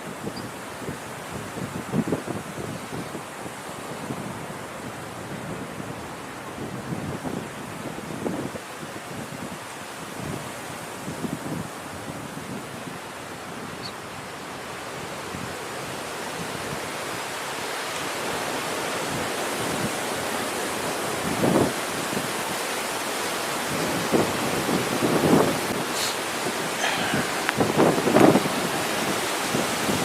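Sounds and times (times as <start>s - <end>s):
wind buffeting microphone: 23.7s - 30.0s.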